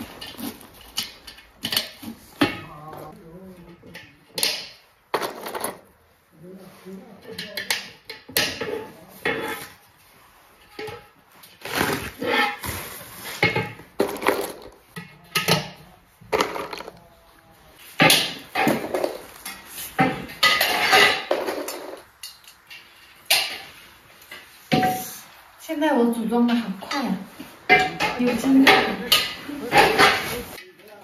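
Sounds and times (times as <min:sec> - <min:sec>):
metal parts clattering: 0:04.4 - 0:05.9, 0:13.4 - 0:17.0, 0:18.0 - 0:23.6.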